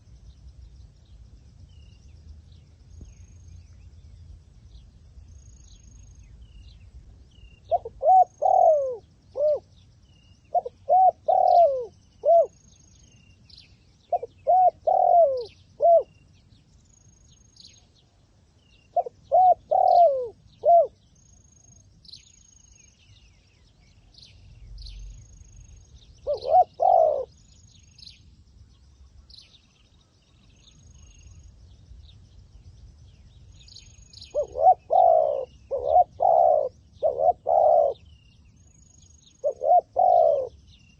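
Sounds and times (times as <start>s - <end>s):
small birds chirping: 0.0s - 40.9s
dove cooing: 7.7s - 9.7s, 10.5s - 12.6s, 14.0s - 16.1s, 18.9s - 21.0s, 26.2s - 27.4s, 34.2s - 38.1s, 39.3s - 40.7s.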